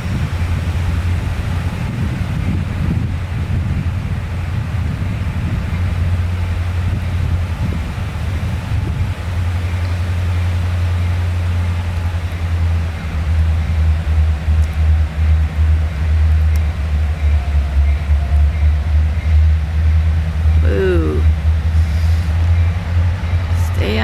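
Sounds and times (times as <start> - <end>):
low engine drone: 0.0 - 24.0.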